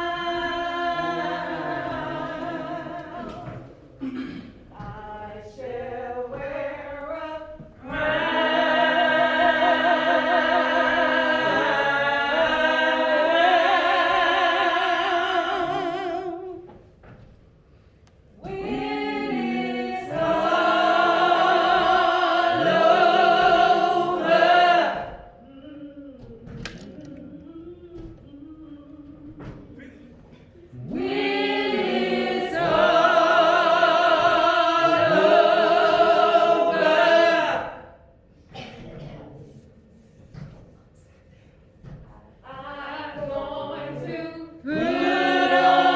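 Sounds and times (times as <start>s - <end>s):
church choir singing: 0.0s - 17.2s, 18.4s - 25.5s, 30.6s - 38.1s, 41.8s - 45.9s.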